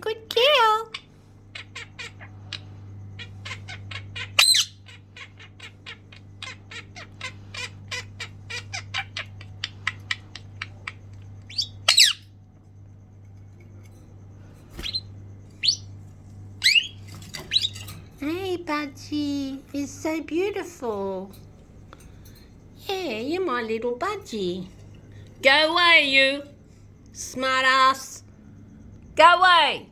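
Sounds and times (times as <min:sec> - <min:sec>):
pet birds chirping: 0:00.0 - 0:29.9
sharp bird squawks: 0:03.2 - 0:10.0, 0:10.6 - 0:12.2, 0:14.8 - 0:15.8.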